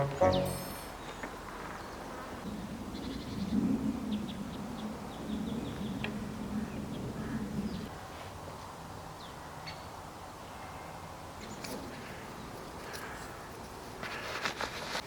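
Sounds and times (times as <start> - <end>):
bird chirping: 0.0 - 1.2.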